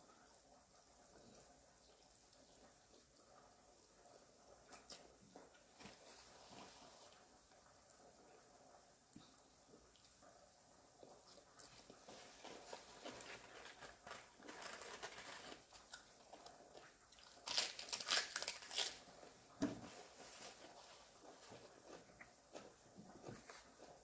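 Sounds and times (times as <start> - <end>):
soft chewing clicks: 9.1 - 13.1, 21.3 - 24.0
crisp crunches of lettuce: 11.6 - 19.2.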